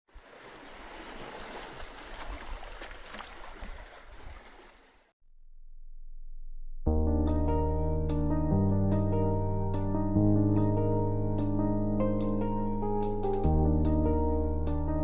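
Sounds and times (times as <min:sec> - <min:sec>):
rushing splashing water: 0:00.1 - 0:05.1
soft keyboard music: 0:06.9 - 0:15.0.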